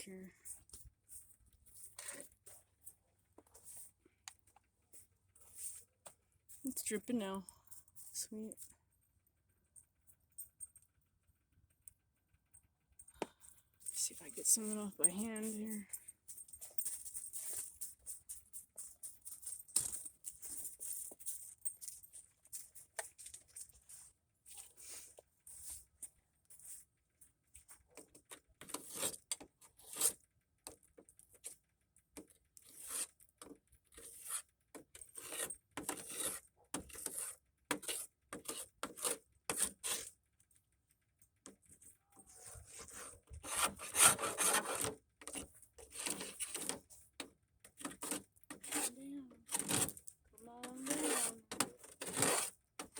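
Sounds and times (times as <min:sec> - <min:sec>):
ice being scraped by hand: 0:28.6 - 0:30.2, 0:32.6 - 0:33.2, 0:33.9 - 0:40.1, 0:42.3 - 0:46.9, 0:47.8 - 0:50.0, 0:50.6 - 0:52.9.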